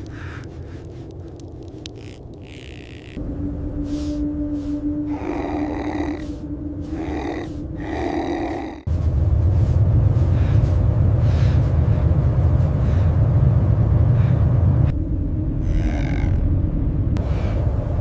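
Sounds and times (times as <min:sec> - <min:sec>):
deep steady rumble: 0:00.0 - 0:18.0
animal growling cries: 0:05.1 - 0:08.9, 0:15.6 - 0:16.5.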